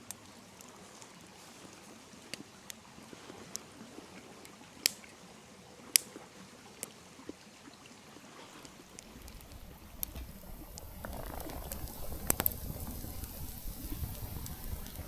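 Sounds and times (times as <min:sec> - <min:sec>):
campfire crackling: 0:04.3 - 0:05.2, 0:08.6 - 0:15.0
stream rushing: 0:08.2 - 0:15.0.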